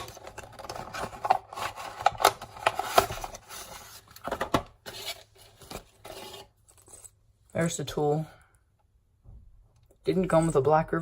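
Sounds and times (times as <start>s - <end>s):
packaging rustling and scraping: 0.0s - 7.2s.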